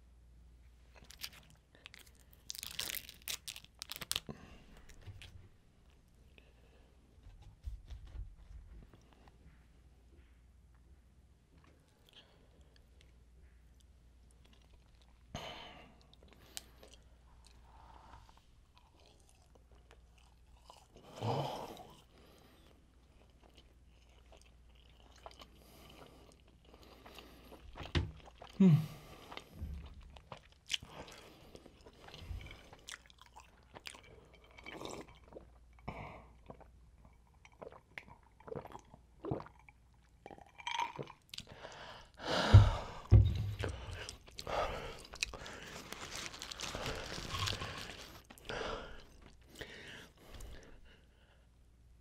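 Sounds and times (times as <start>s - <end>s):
person chewing: 1.0s - 5.3s, 13.8s - 15.3s, 18.7s - 41.8s, 42.6s - 50.9s
wet mouth clicks and crunching: 23.0s - 28.6s, 29.2s - 41.6s, 43.6s - 49.7s.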